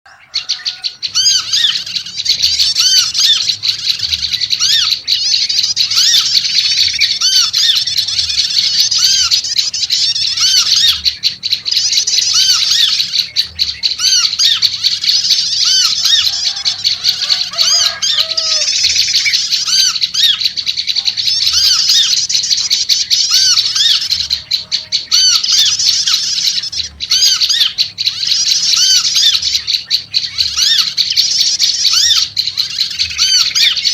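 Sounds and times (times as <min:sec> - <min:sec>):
birds calling busily: 0:00.0 - 0:33.9.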